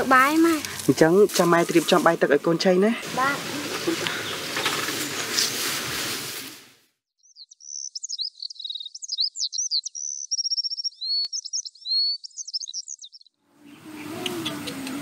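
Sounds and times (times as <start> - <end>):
outdoor background noise: 0.0 - 15.0
small birds chirping and trilling: 3.4 - 5.4, 7.2 - 15.0.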